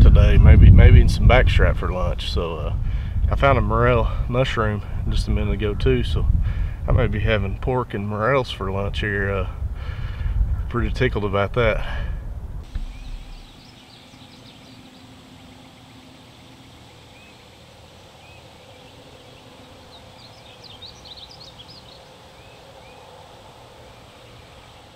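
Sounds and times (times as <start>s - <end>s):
birds chirping and singing: 12.6s - 24.9s.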